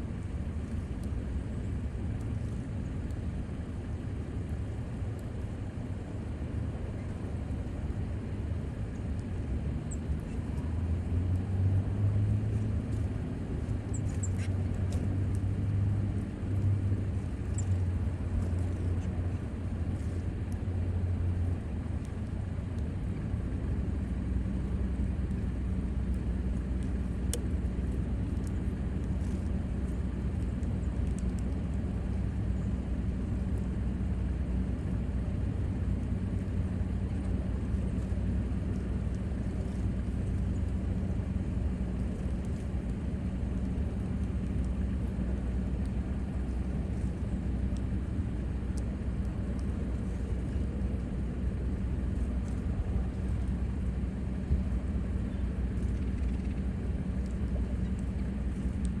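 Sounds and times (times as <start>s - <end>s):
low motor rumble: 0.0s - 59.0s.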